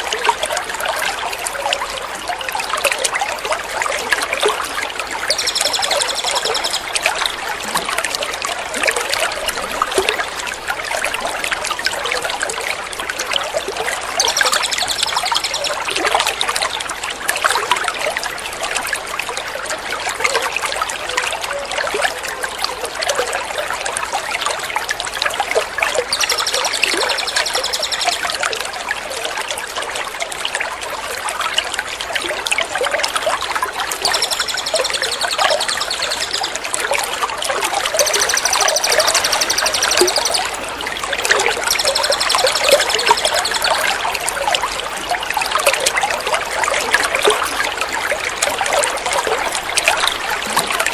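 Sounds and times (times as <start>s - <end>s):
water trickling and splashing: 0.0s - 50.9s
bird trilling: 5.3s - 7.0s, 14.2s - 15.8s, 26.1s - 28.3s, 34.0s - 36.6s, 37.9s - 40.5s, 41.5s - 43.8s.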